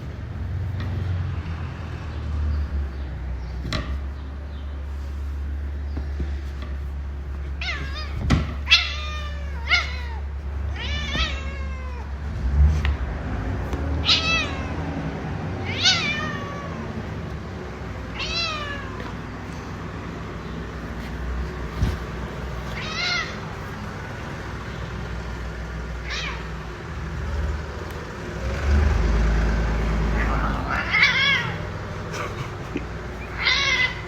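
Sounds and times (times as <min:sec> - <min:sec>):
cat meowing: 0:07.6 - 0:12.2, 0:14.0 - 0:15.0, 0:15.6 - 0:17.2, 0:18.0 - 0:19.2, 0:21.9 - 0:23.7, 0:26.0 - 0:26.7, 0:30.0 - 0:31.8, 0:33.2 - 0:34.0.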